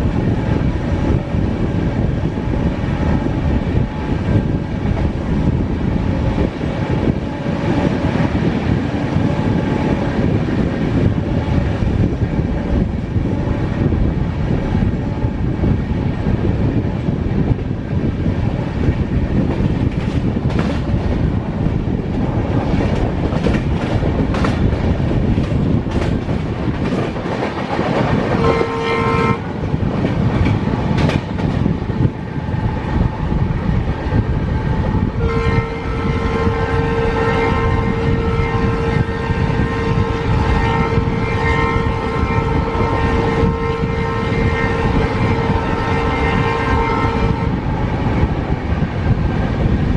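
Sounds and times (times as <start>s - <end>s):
train running at speed: 0.0s - 49.9s
train horn: 28.2s - 29.6s, 34.8s - 47.7s.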